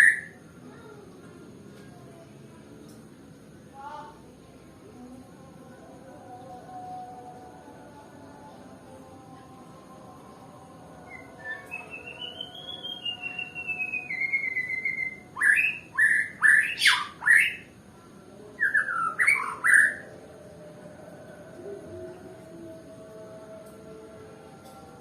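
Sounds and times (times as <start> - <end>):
bird singing trilled phrases: 0.0 - 0.4, 11.1 - 17.7, 18.6 - 20.0.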